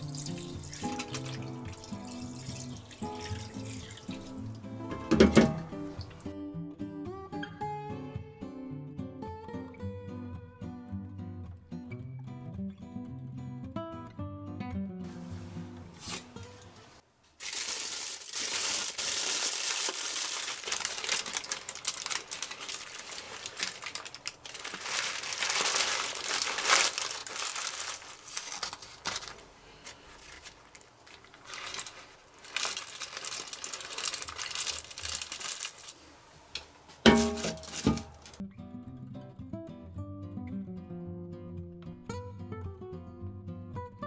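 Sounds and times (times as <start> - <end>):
crinkling rustling handling noise: 0.0 - 6.3, 15.1 - 38.4.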